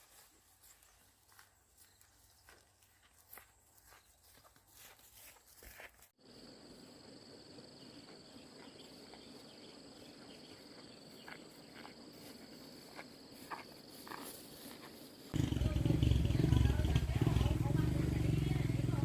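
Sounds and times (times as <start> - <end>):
faint footsteps: 0.0 - 6.2, 8.0 - 18.4.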